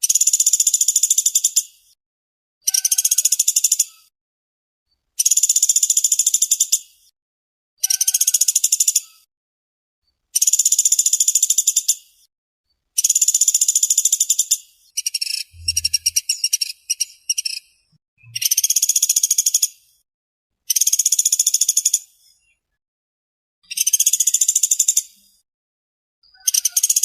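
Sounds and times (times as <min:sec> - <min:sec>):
woodpecker trilling: 0:07.8 - 0:09.2, 0:13.0 - 0:17.6, 0:26.3 - 0:27.0.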